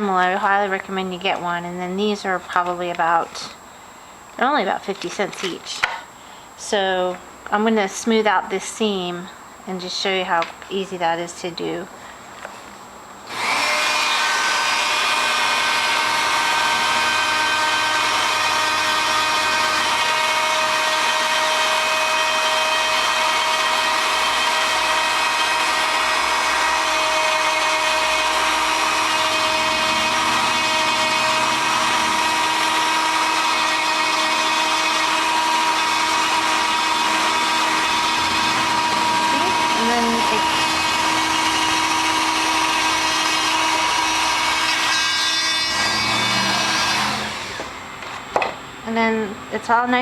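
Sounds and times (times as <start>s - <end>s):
rotary tool whining: 13.3s - 48.2s
abrasive wheel grinding metal: 14.8s - 47.8s.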